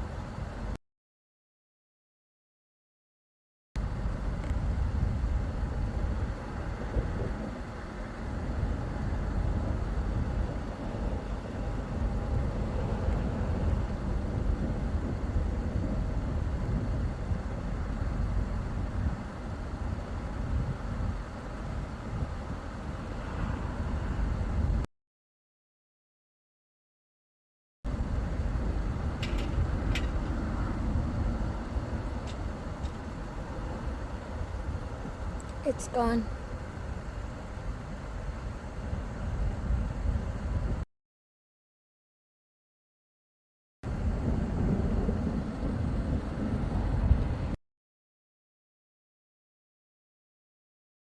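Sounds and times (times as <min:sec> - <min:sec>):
vehicle road noise rumble: 0:03.8 - 0:24.9, 0:27.9 - 0:40.8, 0:43.9 - 0:47.6.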